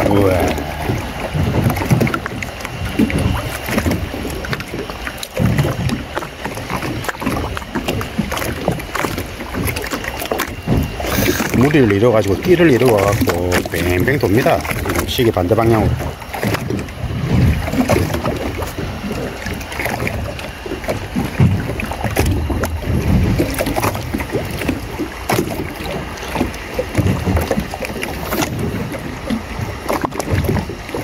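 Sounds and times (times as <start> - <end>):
low rumbling swells: 0.0 - 6.2
wind buffeting microphone: 0.0 - 9.9
knocks and splashes: 0.0 - 31.0
water lapping against boat hull: 0.0 - 31.0.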